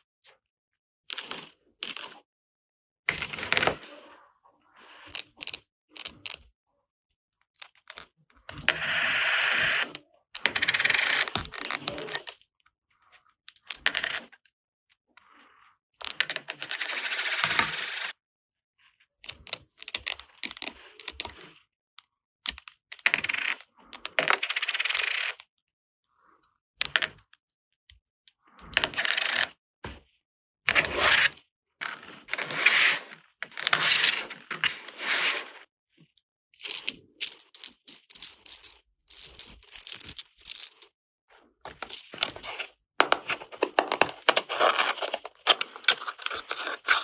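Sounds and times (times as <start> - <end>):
plastic toy pieces rustling clicking: 36.6 - 40.9, 43.0 - 47.0.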